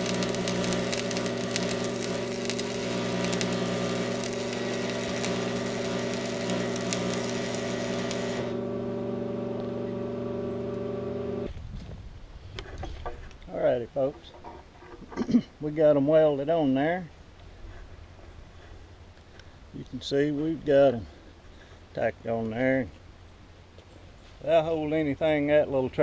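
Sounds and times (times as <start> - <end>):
welding arc crackling: 0.0 - 11.5
welding machine hum: 0.0 - 11.5.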